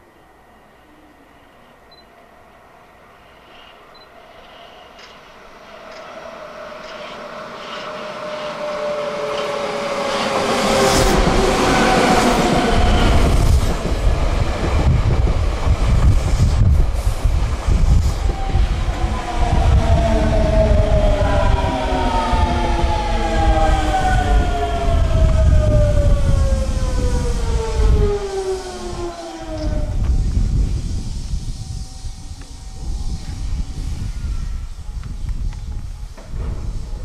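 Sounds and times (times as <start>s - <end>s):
electric train passing: 0.0s - 37.0s
train motor whine: 15.9s - 37.0s.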